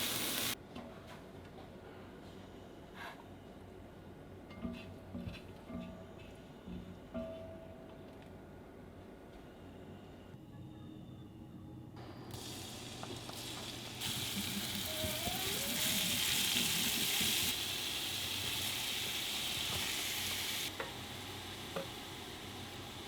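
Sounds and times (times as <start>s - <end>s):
food sizzling in a frying pan: 0.0s - 0.6s, 12.3s - 23.0s.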